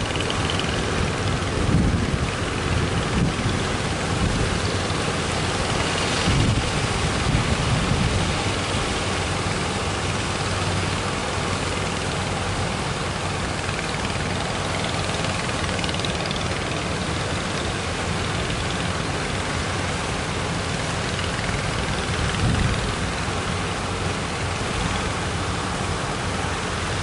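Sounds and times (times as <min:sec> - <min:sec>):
wind noise: 0:00.0 - 0:09.1, 0:21.5 - 0:23.2
boat engine humming: 0:00.0 - 0:27.0
surf washing: 0:00.0 - 0:27.0.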